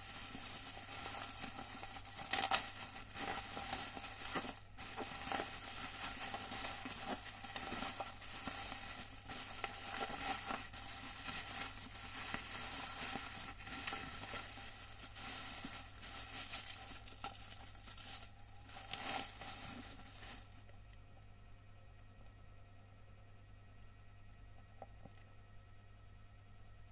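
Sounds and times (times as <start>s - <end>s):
packaging crinkling and tearing: 0.0s - 20.7s
steady low hum: 0.0s - 26.9s.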